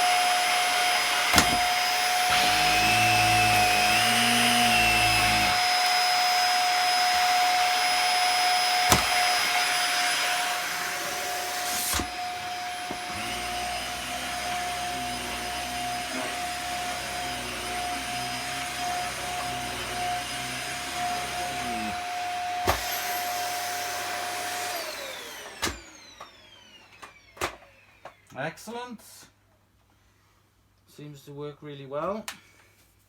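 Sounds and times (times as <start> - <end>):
vacuum cleaner motor whine: 0.0 - 28.3.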